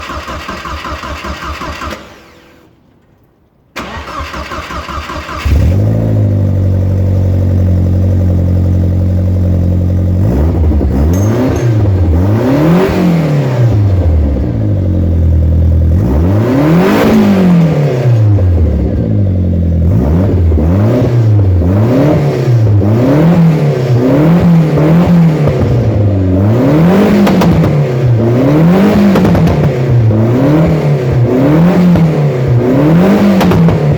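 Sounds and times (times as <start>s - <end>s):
engine cranking on starter: 0.0s - 2.7s, 3.7s - 6.2s
engine idling and revving: 3.8s - 33.9s.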